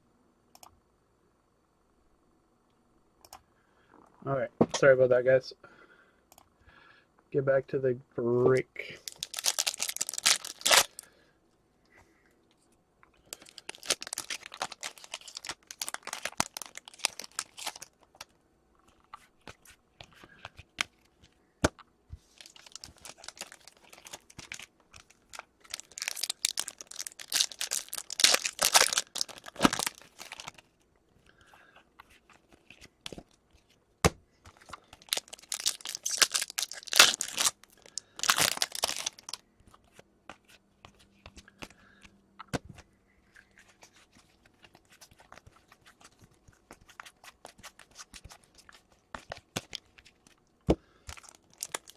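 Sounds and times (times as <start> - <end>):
wrappers tearing and crinkling: 9.0 - 11.0, 13.3 - 18.0, 22.3 - 30.7, 34.6 - 39.4, 51.1 - 51.9.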